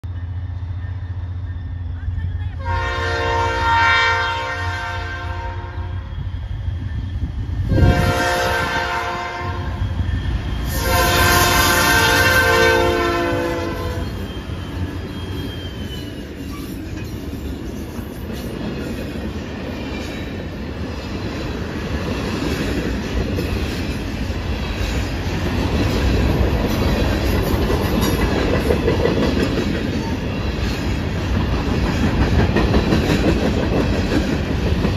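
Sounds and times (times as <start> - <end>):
diesel locomotives running: 0.0 - 34.9
train horn blasts: 2.6 - 6.1, 7.7 - 9.8, 10.6 - 14.3
train wheels clacking on rails: 6.2 - 34.9.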